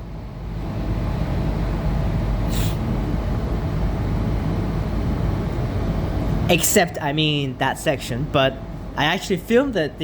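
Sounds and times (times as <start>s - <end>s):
brief hiss: 2.5s - 2.8s.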